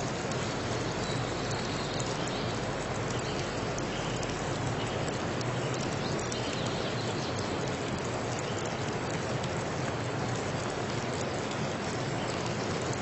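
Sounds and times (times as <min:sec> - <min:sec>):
small ticks: 0:00.0 - 0:13.0.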